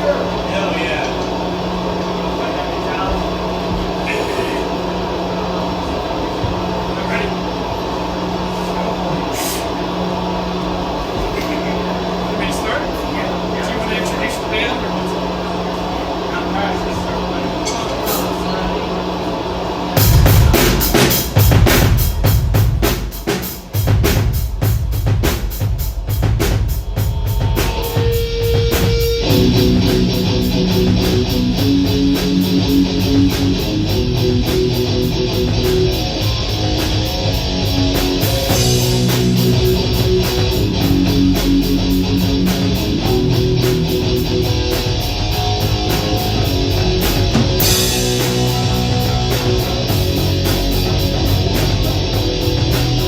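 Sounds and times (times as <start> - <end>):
drums: 19.6 - 53.0
rock band playing: 20.0 - 53.0
guitars: 27.2 - 53.0.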